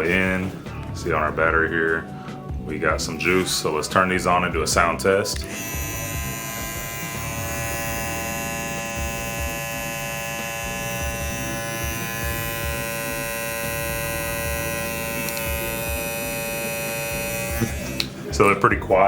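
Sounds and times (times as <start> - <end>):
hair clipper buzzing: 3.2 - 3.7, 5.4 - 18.2.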